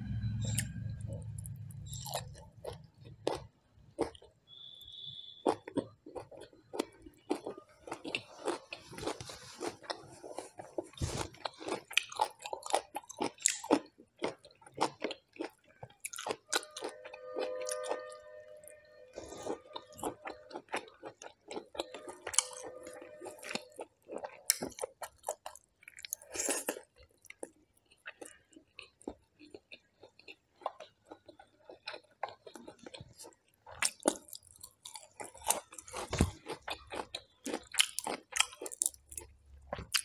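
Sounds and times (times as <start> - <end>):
chewing and crunching: 0.4 - 40.0
faint held tone: 16.5 - 20.6, 21.8 - 23.8.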